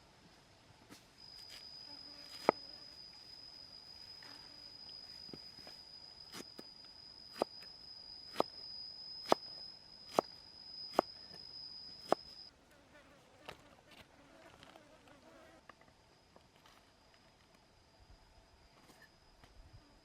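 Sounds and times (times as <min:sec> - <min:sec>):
high-pitched insect drone: 0:01.2 - 0:12.5.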